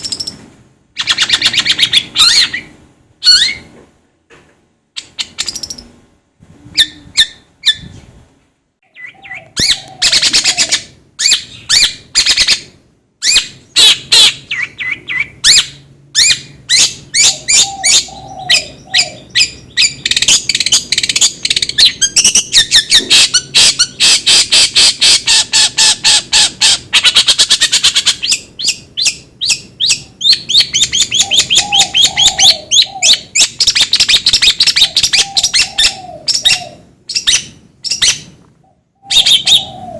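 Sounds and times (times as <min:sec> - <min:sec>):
bird harsh chattering calls: 0:08.9 - 0:38.3, 0:39.0 - 0:39.9.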